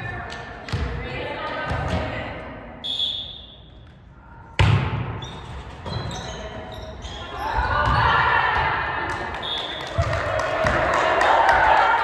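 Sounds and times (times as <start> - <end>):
volleyball hit and bouncing: 4.6 - 5.3, 7.6 - 12.0
sneaker squeaks on court: 5.1 - 8.1.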